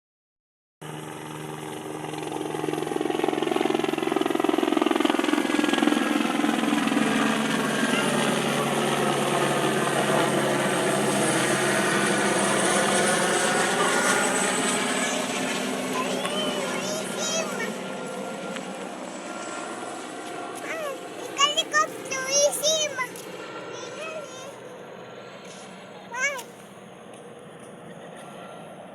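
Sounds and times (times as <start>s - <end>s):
helicopter rotor and engine drone: 0.8s - 28.9s.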